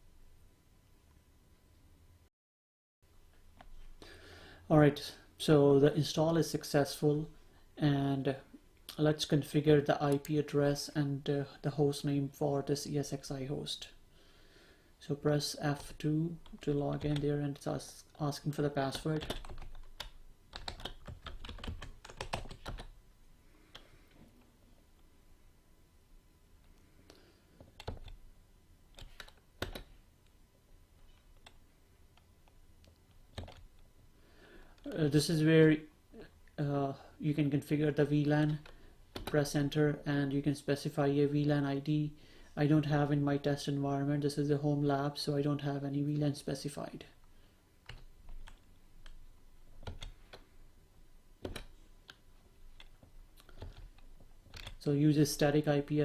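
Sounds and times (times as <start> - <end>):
keyboard keys clicking: 18.9 - 22.9, 27.7 - 28.2, 29.0 - 29.9, 33.3 - 33.6, 49.8 - 50.4, 51.4 - 52.2, 52.8 - 54.8
computer keyboard key clicks: 29.0 - 29.9, 51.4 - 52.2, 52.8 - 54.8.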